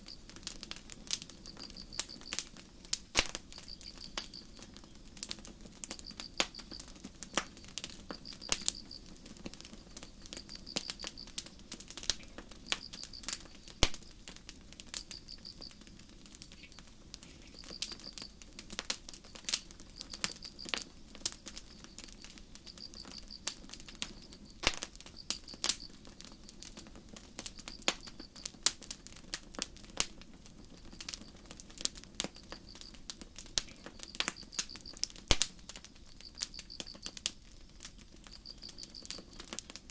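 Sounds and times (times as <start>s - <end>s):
crickets chirping: 0.0s - 0.3s, 1.2s - 2.6s, 3.3s - 5.2s, 5.8s - 14.3s, 14.9s - 26.7s, 27.4s - 28.6s, 32.2s - 39.8s
campfire crackling and popping: 0.0s - 39.9s.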